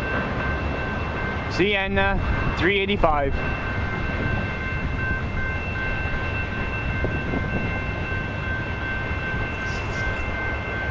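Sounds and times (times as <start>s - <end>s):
freight train cars rolling: 0.0s - 10.9s
high-pitched whine: 8.8s - 10.9s.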